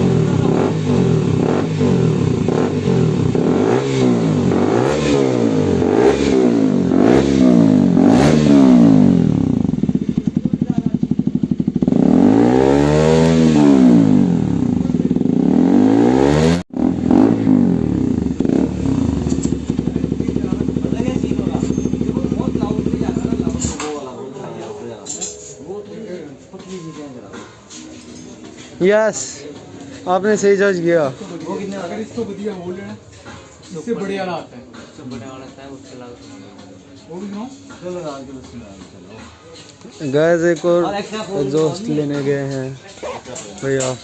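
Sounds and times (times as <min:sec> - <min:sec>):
motorcycle engine revving and idling: 0:00.0 - 0:23.9.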